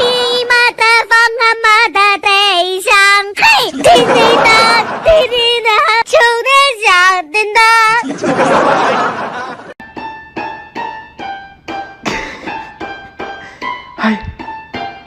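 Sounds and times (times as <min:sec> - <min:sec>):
high-pitched voice singing: 0:00.0 - 0:08.1.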